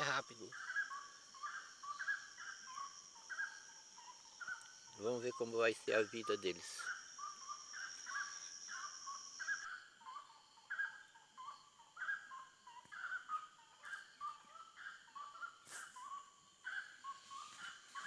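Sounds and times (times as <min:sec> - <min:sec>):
high buzz of insects: 0:00.0 - 0:09.6.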